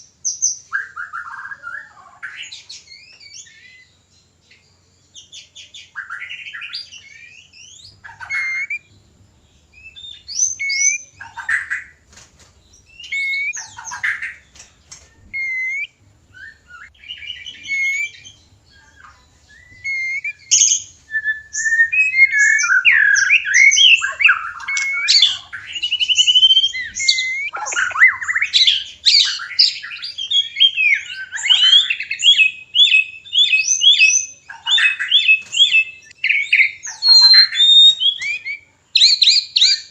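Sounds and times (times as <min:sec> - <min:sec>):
dense bird song: 0:00.0 - 0:39.9
bird whistling and chattering: 0:05.9 - 0:08.9, 0:09.8 - 0:11.9, 0:12.9 - 0:14.4, 0:15.3 - 0:39.9.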